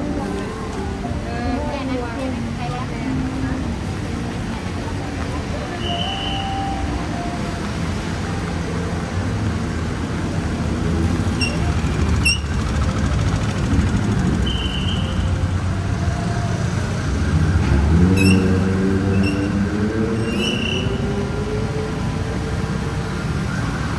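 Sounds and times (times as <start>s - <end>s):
vehicle engines rumbling: 0.0s - 23.9s
engine pulling away: 8.8s - 23.9s.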